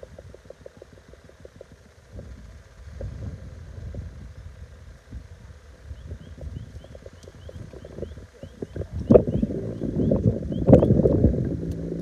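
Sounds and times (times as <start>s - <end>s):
wind buffeting microphone: 0.0s - 12.0s
faint high chirp: 5.9s - 11.0s.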